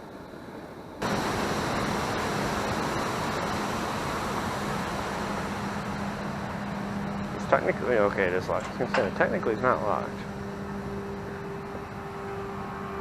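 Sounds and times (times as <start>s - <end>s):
water rushing over dam: 1.0s - 6.8s.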